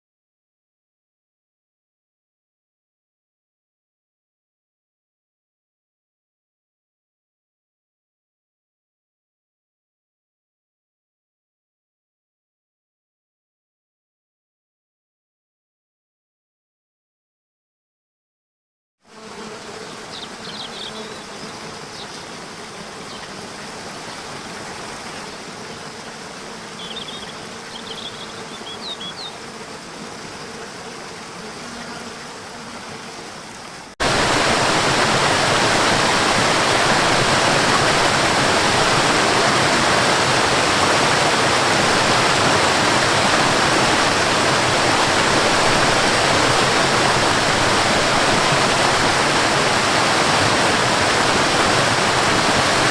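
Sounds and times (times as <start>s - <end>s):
rushing water: 19.8s - 52.9s
waterfall rushing: 33.5s - 52.9s.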